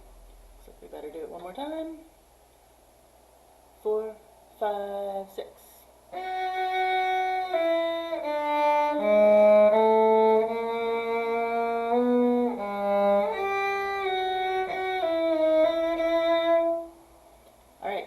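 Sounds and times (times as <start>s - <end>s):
violin playing slow bowed notes: 6.1s - 17.0s.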